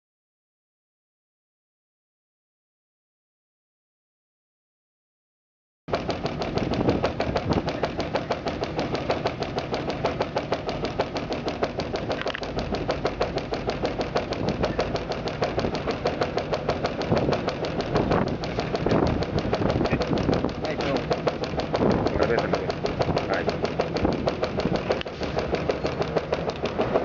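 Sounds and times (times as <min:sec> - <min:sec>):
washing machine knocking rattle: 0:05.9 - 0:27.0.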